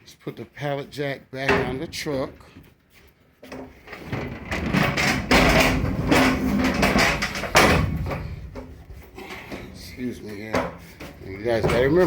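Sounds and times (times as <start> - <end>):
pallet jack rattling and clanking: 3.5 - 12.0
loud metal knocks: 4.1 - 8.7.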